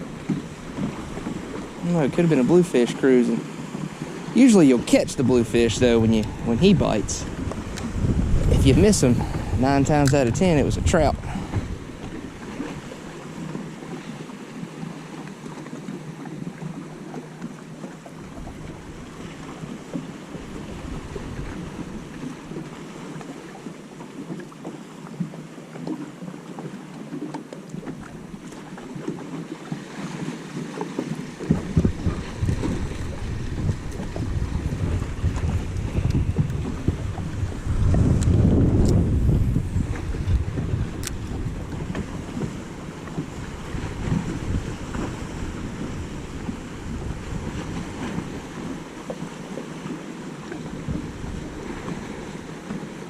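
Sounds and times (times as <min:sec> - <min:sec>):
water washing: 0:00.0 - 0:03.5, 0:27.8 - 0:48.8
wind buffeting microphone: 0:00.0 - 0:13.9, 0:18.2 - 0:22.9, 0:31.0 - 0:53.0.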